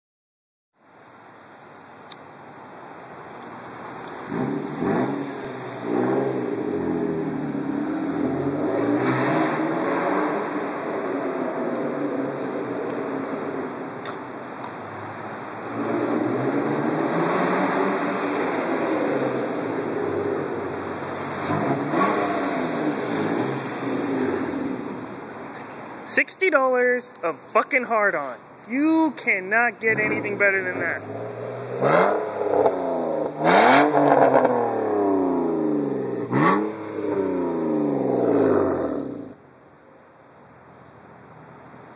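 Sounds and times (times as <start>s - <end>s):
car engine revving: 4.2s - 12.8s, 15.6s - 25.4s, 29.8s - 39.4s.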